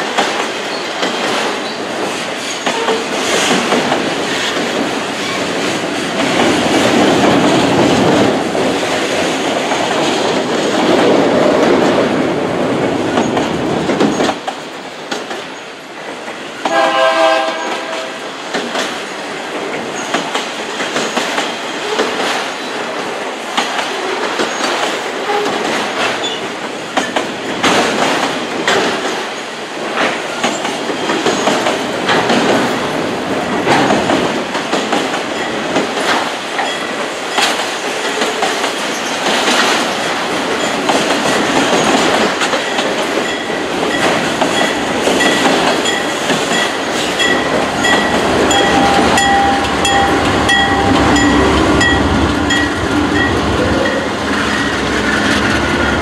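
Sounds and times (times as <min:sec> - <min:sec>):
freight train rumbling past: 0:00.0 - 0:56.0
train horn: 0:16.7 - 0:18.2, 0:48.5 - 0:53.3.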